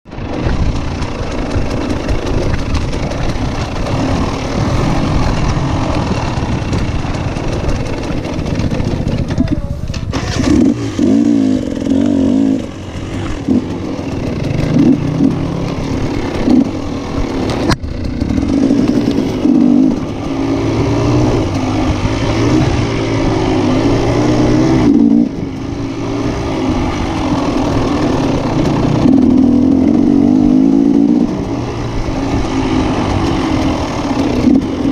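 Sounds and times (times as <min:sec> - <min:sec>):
motorcycle engines revving: 0:00.1 - 0:34.9.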